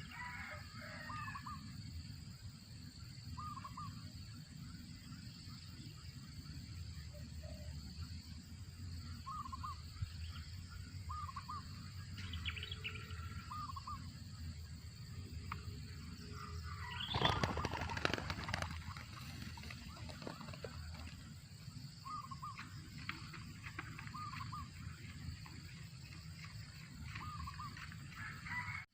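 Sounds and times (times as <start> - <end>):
dove chirping: 3.3 - 4.1, 9.0 - 14.5, 15.6 - 28.8.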